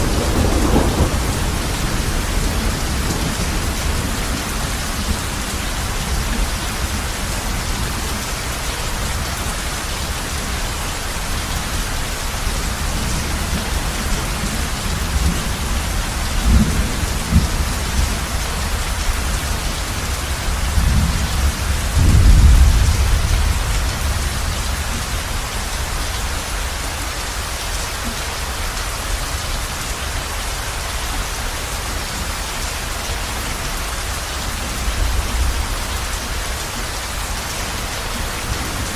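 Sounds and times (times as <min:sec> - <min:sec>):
thunder rumbling: 0:00.0 - 0:08.1, 0:10.6 - 0:25.9
heavy rain on a roof: 0:00.0 - 0:38.9.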